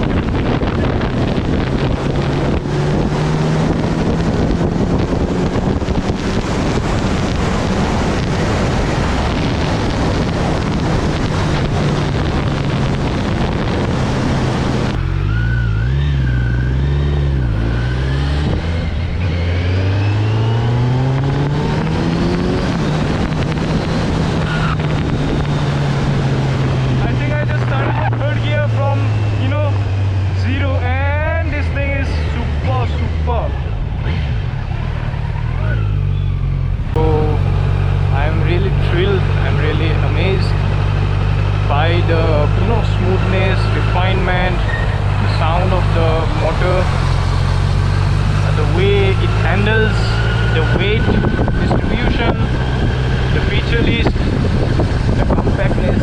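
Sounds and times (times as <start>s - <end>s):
wind rush on microphone: 0.0s - 35.1s, 36.6s - 56.0s
motorcycle engine running: 0.0s - 56.0s.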